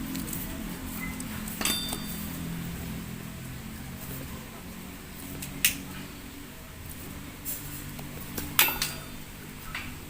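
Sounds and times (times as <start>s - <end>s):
low steady hum: 0.0s - 10.0s
metal tools clinking: 1.4s - 2.5s.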